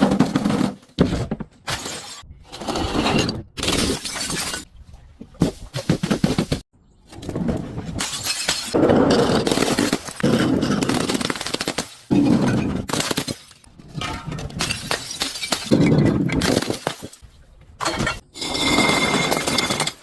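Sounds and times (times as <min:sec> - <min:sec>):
glass bottle crushing: 0:12.3 - 0:17.2, 0:17.8 - 0:20.0.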